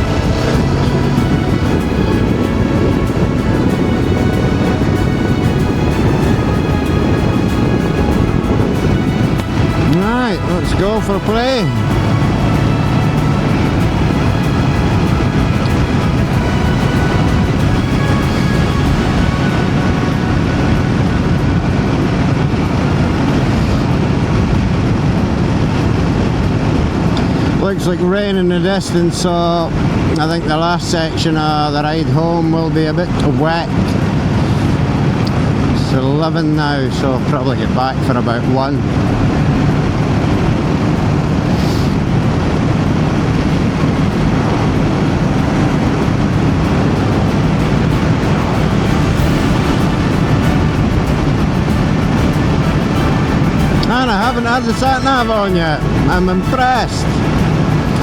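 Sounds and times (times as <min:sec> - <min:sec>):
motorcycle engine running: 0:00.0 - 0:27.5, 0:38.8 - 0:58.0
wind noise on microphone: 0:00.0 - 0:58.0.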